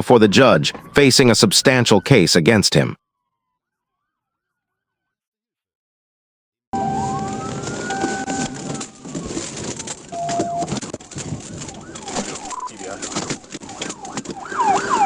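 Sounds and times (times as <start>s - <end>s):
radio-like sounds: 0.0s - 3.0s
yelping siren: 6.8s - 10.7s, 11.8s - 15.0s
police siren wailing: 6.8s - 10.8s, 11.5s - 15.0s.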